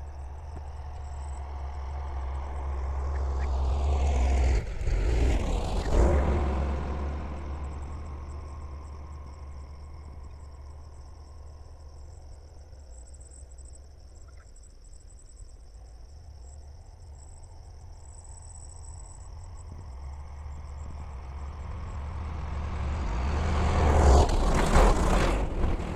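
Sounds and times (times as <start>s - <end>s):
vehicle engine approaching: 0.0s - 13.7s, 16.4s - 25.9s
crickets chirring: 0.0s - 25.9s
low engine rumble: 0.0s - 25.9s.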